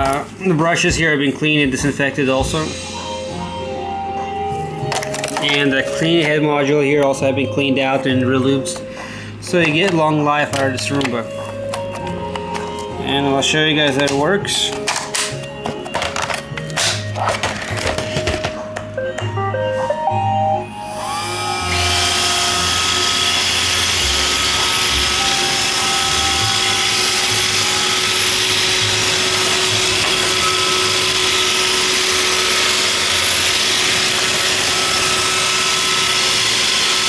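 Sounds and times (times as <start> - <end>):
robot vacuum whirring: 20.7 - 37.0.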